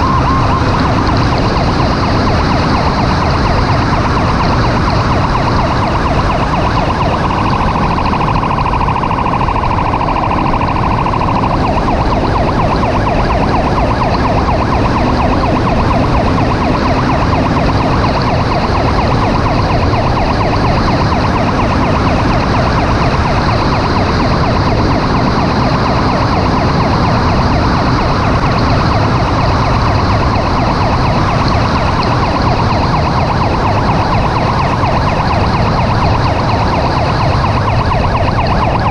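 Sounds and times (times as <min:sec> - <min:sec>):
emergency vehicle siren: 0:00.0 - 0:38.9
road noise: 0:00.0 - 0:38.9.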